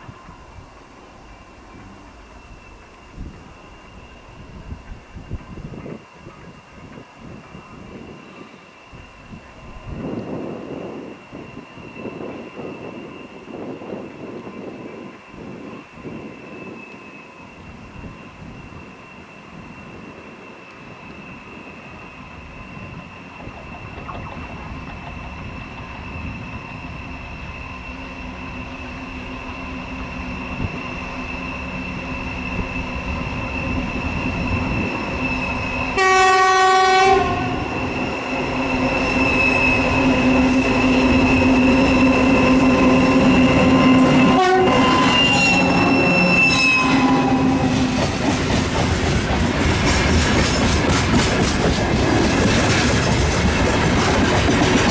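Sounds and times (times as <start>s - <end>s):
diesel locomotive engine drone: 0.0s - 54.9s
locomotive horn blast: 36.0s - 37.8s, 42.7s - 47.8s
wheels clicking over rail joints: 47.3s - 54.9s.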